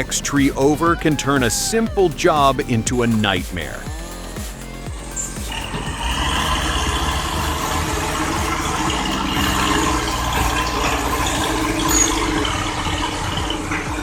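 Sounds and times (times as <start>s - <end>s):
heavy engine running: 4.0s - 14.0s.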